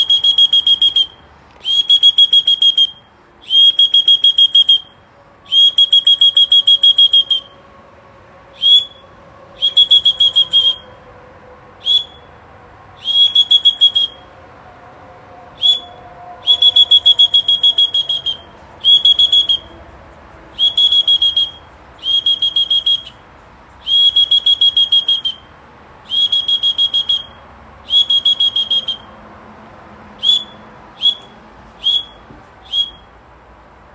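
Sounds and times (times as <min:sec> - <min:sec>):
short whistle pips: 0:00.0 - 0:07.6, 0:08.6 - 0:11.0, 0:11.8 - 0:12.3, 0:13.0 - 0:14.3, 0:15.6 - 0:19.8, 0:20.5 - 0:25.5, 0:26.1 - 0:29.2, 0:30.2 - 0:33.2
whistle trilling blasts: 0:00.0 - 0:07.6, 0:08.5 - 0:11.0, 0:11.8 - 0:12.4, 0:13.0 - 0:14.3, 0:15.5 - 0:19.8, 0:20.5 - 0:29.2, 0:30.2 - 0:33.2.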